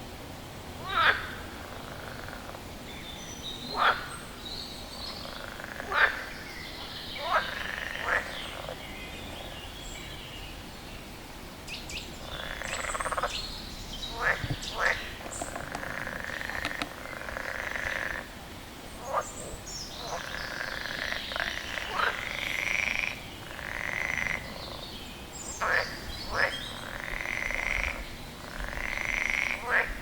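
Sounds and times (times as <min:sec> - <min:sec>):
frog croaking: 0:00.8 - 0:02.7, 0:03.7 - 0:04.2, 0:05.0 - 0:09.6, 0:12.2 - 0:13.4, 0:14.0 - 0:18.4, 0:19.0 - 0:30.0.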